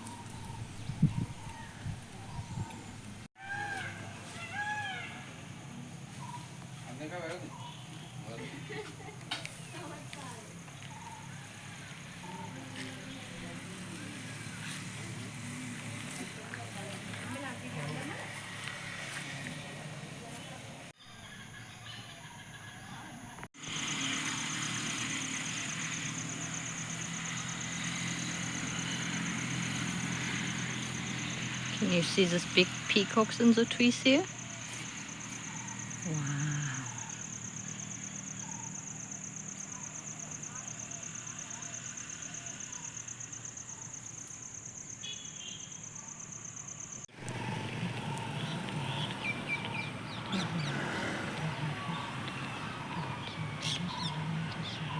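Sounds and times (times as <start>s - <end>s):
birds chirping and calling: 0.0s - 3.2s, 6.1s - 8.8s, 47.5s - 54.9s
scooter engine idling: 23.6s - 54.9s.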